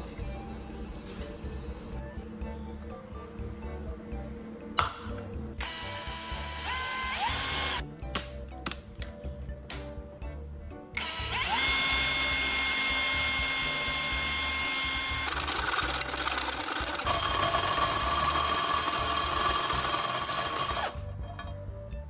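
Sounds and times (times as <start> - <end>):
background music: 0.0 - 22.0
power tool motor whining: 5.6 - 7.8, 11.0 - 21.0.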